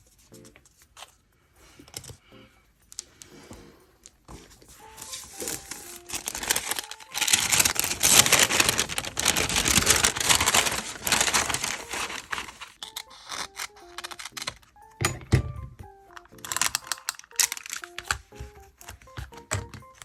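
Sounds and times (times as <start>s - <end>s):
wrapping crinkling: 4.0s - 14.9s, 16.1s - 20.0s.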